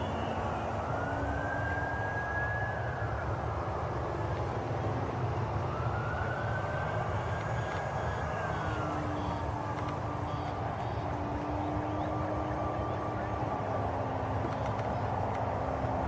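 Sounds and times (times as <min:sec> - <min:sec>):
electric model plane motor whining: 0:06.2 - 0:12.1.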